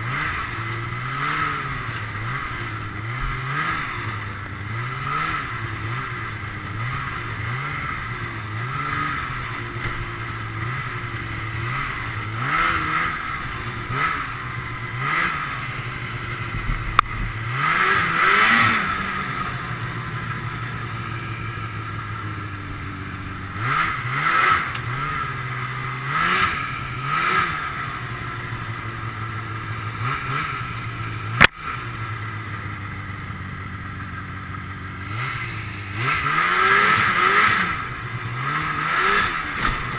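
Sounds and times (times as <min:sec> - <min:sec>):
snowmobile engine revving: 0:00.0 - 0:39.9
sharp crack: 0:31.4 - 0:31.8.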